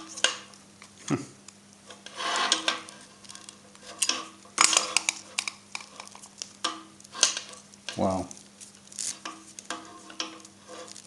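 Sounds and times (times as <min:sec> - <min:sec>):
cable rubbing and scraping: 0:01.9 - 0:06.4, 0:07.1 - 0:11.0.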